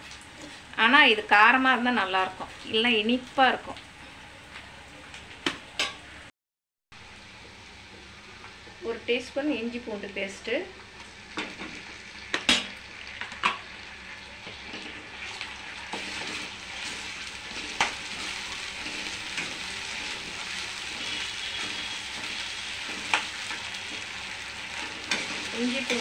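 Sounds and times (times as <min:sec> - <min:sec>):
paste sizzling in hot oil: 0:10.9 - 0:26.0.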